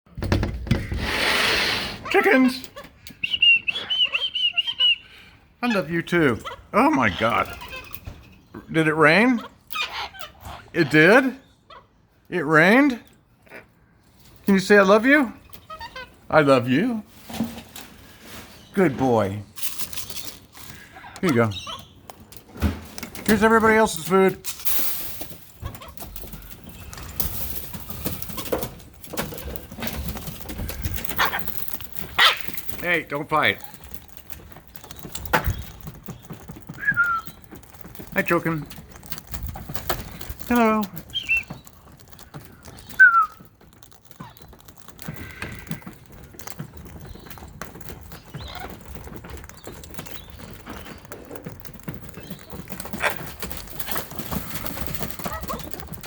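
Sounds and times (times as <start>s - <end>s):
clicks and taps of beaks: 2.6s - 5.2s, 30.6s - 56.0s
soft cockatoo calls: 3.2s - 5.1s.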